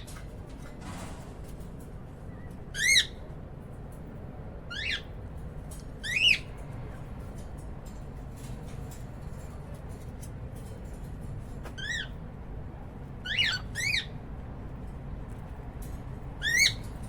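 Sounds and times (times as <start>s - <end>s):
cockatiel calls: 2.8s - 3.2s, 4.7s - 5.1s, 11.8s - 12.2s, 13.2s - 14.1s, 16.4s - 16.8s.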